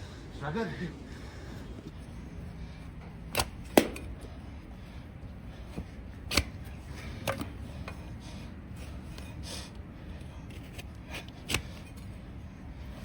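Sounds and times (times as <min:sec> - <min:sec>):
knocks of hoof trimming: 0:05.7 - 0:08.1, 0:10.5 - 0:12.1.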